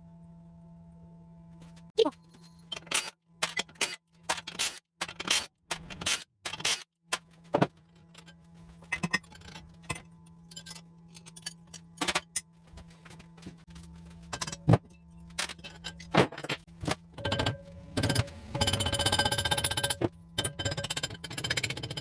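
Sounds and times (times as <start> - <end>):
steady low hum: 0.0 - 4.4, 7.1 - 22.0
metal tools clinking: 8.1 - 12.4.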